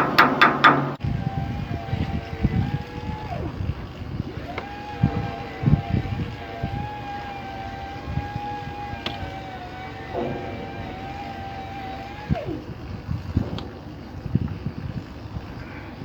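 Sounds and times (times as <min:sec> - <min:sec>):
knocks: 0:00.0 - 0:01.0, 0:08.4 - 0:12.7
electric motor whining: 0:01.0 - 0:16.0.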